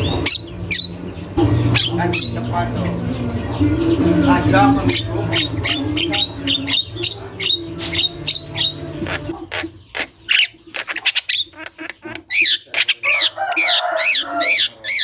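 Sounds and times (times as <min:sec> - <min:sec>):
myna squawking and whistling: 0:04.9 - 0:15.0.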